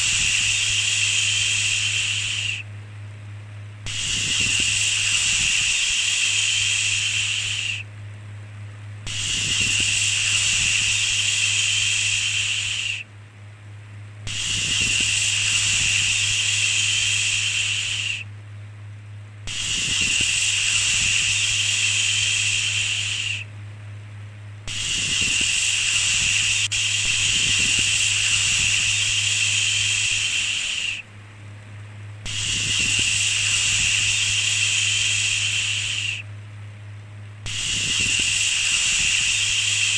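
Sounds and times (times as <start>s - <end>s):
person shushing: 19.5s - 23.4s, 24.7s - 31.0s.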